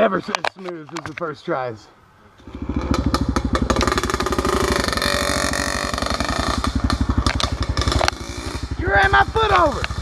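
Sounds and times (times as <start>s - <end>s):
dirt bike engine revving: 2.4s - 10.0s.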